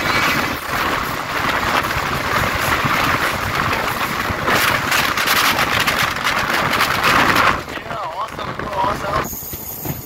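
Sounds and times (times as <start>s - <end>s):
passenger train rushing: 0.0s - 10.0s.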